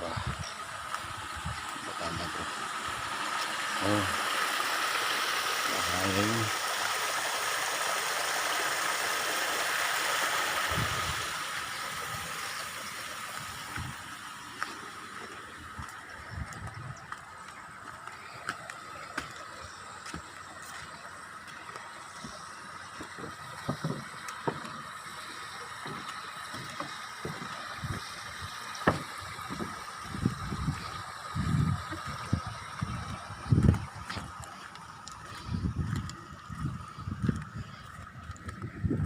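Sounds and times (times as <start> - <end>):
stream water rushing: 0.0 - 38.4
footsteps on a trail: 13.6 - 25.0, 28.8 - 29.8, 32.8 - 39.0
soft footsteps on ground: 14.6 - 22.4.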